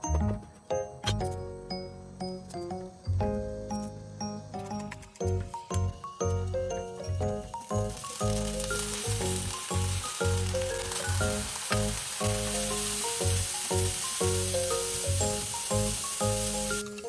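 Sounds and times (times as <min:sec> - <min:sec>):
vegetables sizzling in a pan: 0:07.6 - 0:17.0.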